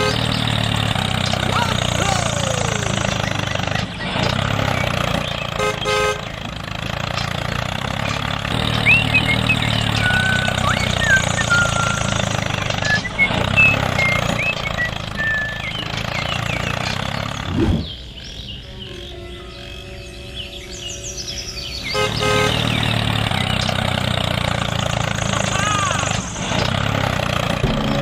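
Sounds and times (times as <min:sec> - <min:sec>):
horn toot: 0:00.0 - 0:00.4, 0:05.5 - 0:06.4, 0:21.8 - 0:23.3
vehicle engine running: 0:00.0 - 0:28.0
high chirps: 0:08.6 - 0:24.0.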